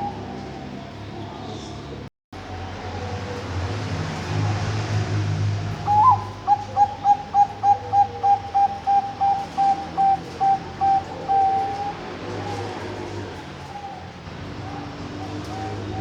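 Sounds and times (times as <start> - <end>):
dove cooing: 0.0 - 0.8, 5.7 - 16.0.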